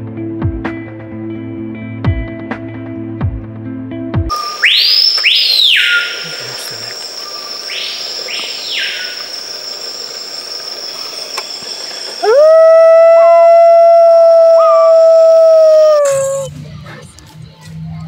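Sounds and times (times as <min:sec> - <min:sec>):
sweeping bird calls: 0:04.3 - 0:11.2
high-pitched insect drone: 0:04.3 - 0:16.5.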